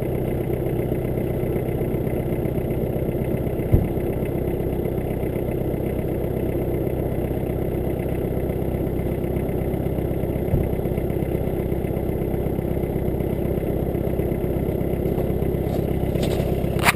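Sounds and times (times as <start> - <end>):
diesel engine idling: 0.0 - 16.9
short engine knock: 3.5 - 4.4, 10.3 - 12.2, 14.8 - 16.9.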